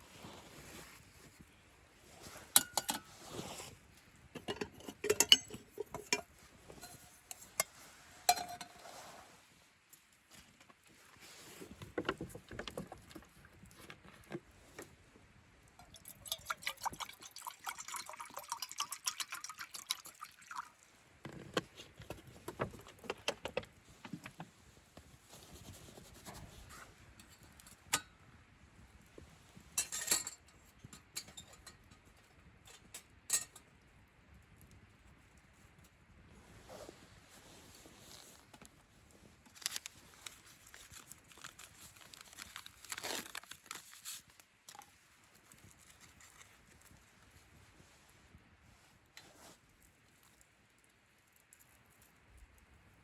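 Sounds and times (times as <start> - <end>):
cookware knocks and clinks: 4.4 - 7.0
liquid pouring into vessel: 15.8 - 20.8.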